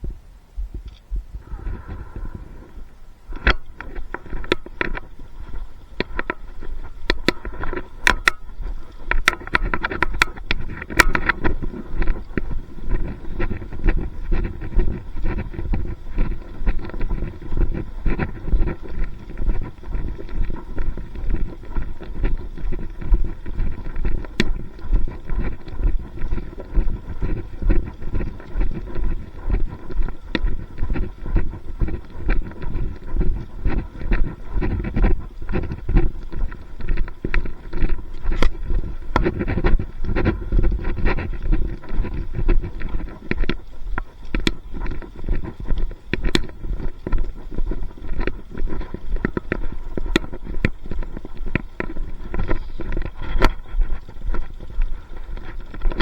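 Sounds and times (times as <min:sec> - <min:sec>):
wind noise: 0:00.0 - 0:56.0
sharp clicks: 0:06.0 - 0:17.3.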